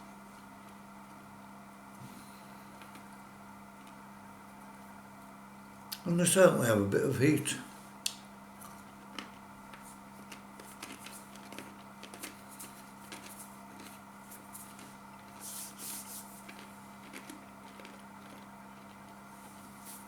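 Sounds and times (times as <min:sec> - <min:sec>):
steady low hum: 0:00.0 - 0:20.0
person chewing crunchy chips: 0:08.6 - 0:15.6, 0:16.4 - 0:19.3.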